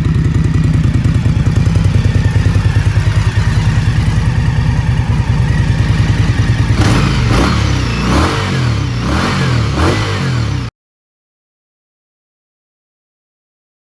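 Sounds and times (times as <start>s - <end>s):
motorcycle engine idling: 0.0s - 10.7s
motorcycle throttle blips: 0.0s - 10.7s.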